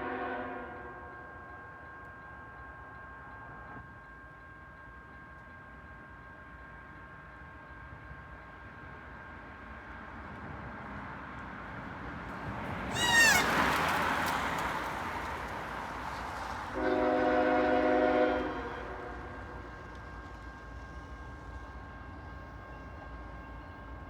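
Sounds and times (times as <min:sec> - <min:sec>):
locomotive air horn chord: 0:00.0 - 0:00.9, 0:16.8 - 0:19.4
freight train running past: 0:00.0 - 0:24.0
brief high squeal: 0:12.9 - 0:13.6.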